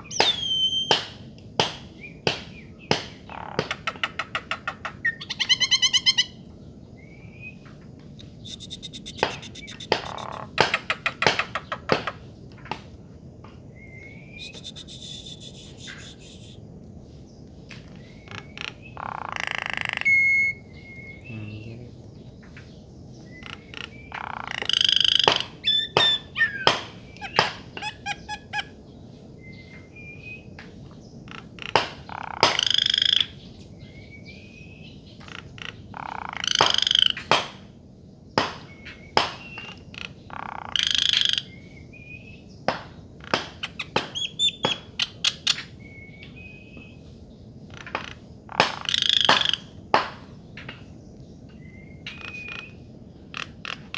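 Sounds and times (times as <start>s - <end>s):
bird harsh rasping calls: 0.0s - 1.2s, 2.0s - 6.5s, 8.2s - 12.3s, 14.1s - 16.6s, 17.9s - 22.1s, 23.2s - 28.8s, 31.2s - 33.5s, 35.2s - 37.5s, 38.6s - 41.7s, 43.2s - 45.8s, 47.6s - 49.8s, 51.9s - 53.9s
bird sharp clicking notes: 0.0s - 6.1s, 8.2s - 12.8s, 13.8s - 16.4s, 23.4s - 28.7s, 31.3s - 33.3s, 35.2s - 37.6s, 42.7s - 46.4s, 47.7s - 50.8s
faint whistled notes: 8.2s - 9.9s, 13.8s - 16.6s.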